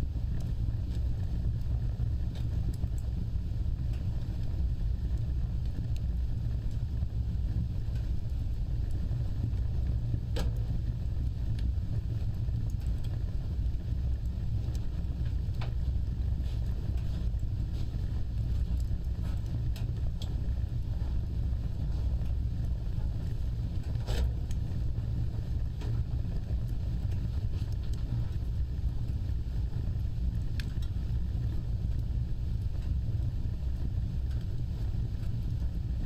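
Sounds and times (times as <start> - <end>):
fireplace fire crackling: 0.0 - 36.0.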